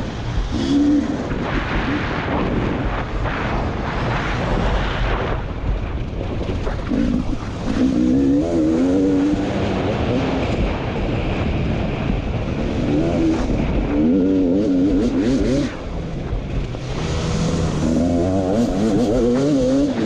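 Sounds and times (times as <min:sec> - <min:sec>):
wind noise: 0:00.0 - 0:20.0
dirt bike engine revving: 0:06.8 - 0:10.8, 0:12.6 - 0:20.0.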